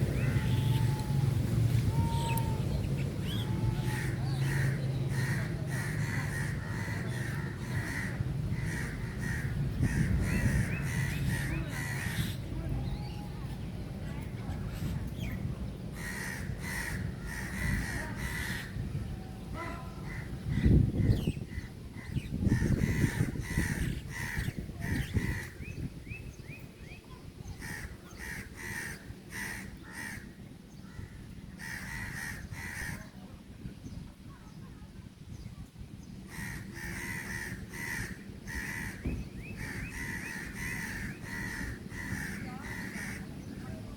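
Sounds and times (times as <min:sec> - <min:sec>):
birds calling: 0:00.0 - 0:33.1, 0:35.3 - 0:43.9
crows cawing: 0:03.5 - 0:12.3, 0:16.0 - 0:18.8, 0:21.5 - 0:25.6, 0:27.6 - 0:33.0, 0:36.3 - 0:43.3.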